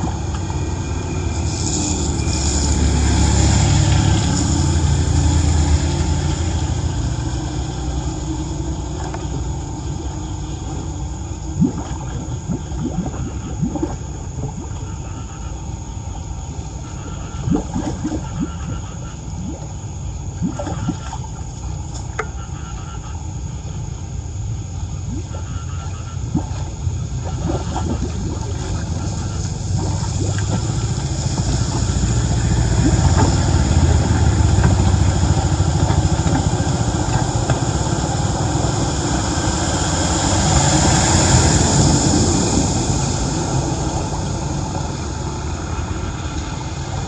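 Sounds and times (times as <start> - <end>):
floodwater gurgling and splashing: 0.0 - 47.0
bubbly plops: 10.8 - 15.1, 17.3 - 21.5, 26.3 - 38.4.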